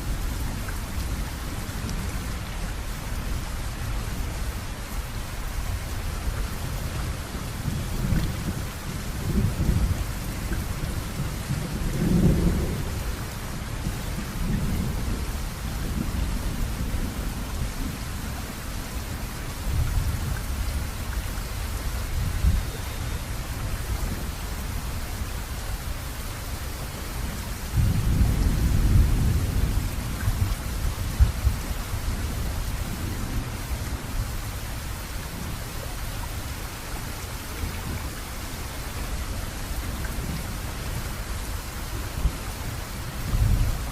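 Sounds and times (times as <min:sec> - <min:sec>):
heavy rain hissing: 0:00.0 - 0:43.9
thunder rumbling: 0:07.6 - 0:13.2.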